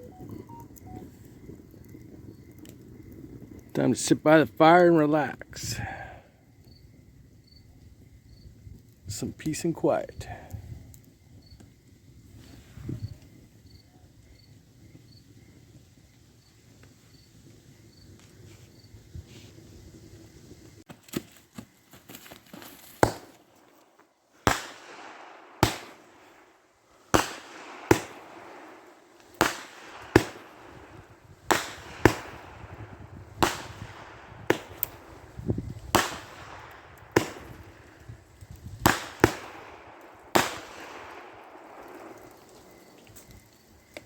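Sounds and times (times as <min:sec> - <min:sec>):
fireworks bangs: 0:00.0 - 0:01.7, 0:22.8 - 0:23.7, 0:24.4 - 0:42.8.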